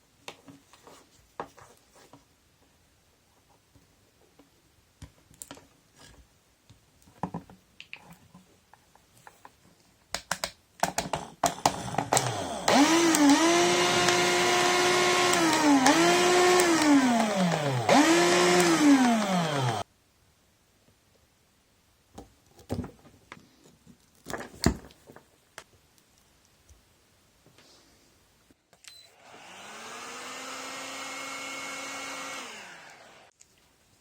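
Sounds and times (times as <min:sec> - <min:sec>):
cordless drill motor whine: 0:11.5 - 0:19.8, 0:28.9 - 0:33.3.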